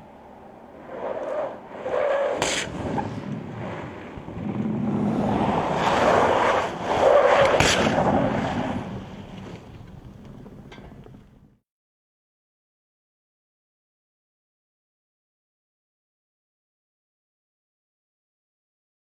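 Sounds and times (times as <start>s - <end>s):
car engine and tyre noise: 0.0s - 11.6s.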